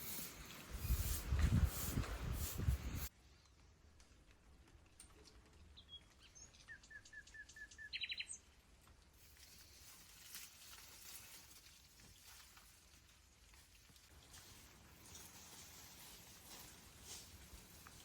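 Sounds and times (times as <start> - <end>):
high bird chirps: 5.8 - 8.4.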